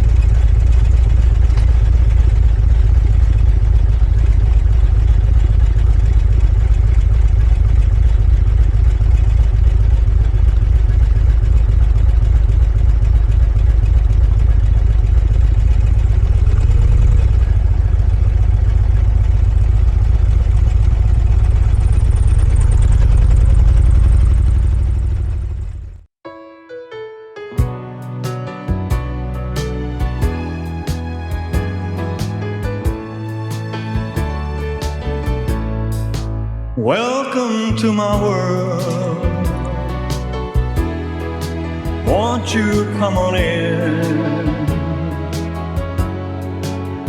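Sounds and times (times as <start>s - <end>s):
sidecar motorcycle engine rumble: 0.0s - 26.1s.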